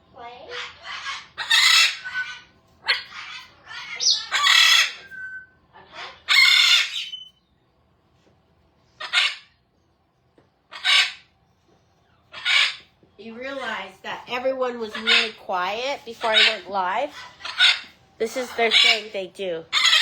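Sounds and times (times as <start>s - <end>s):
parrots squawking and screeching: 0.1s - 7.4s, 8.9s - 9.7s, 10.7s - 11.4s, 12.2s - 20.0s.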